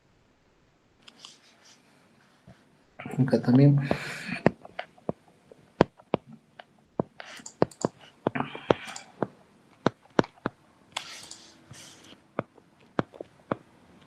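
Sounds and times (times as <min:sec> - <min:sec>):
soft rustles: 0:01.0 - 0:02.8
mouse and keyboard clicking: 0:07.2 - 0:08.0, 0:08.7 - 0:09.1, 0:09.8 - 0:12.2.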